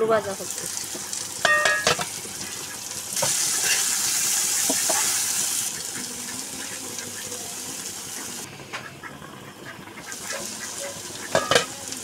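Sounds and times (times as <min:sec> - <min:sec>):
vegetables sizzling in hot oil: 0:00.0 - 0:08.6, 0:10.0 - 0:12.0
steel spoon clinking on pan: 0:01.4 - 0:02.1.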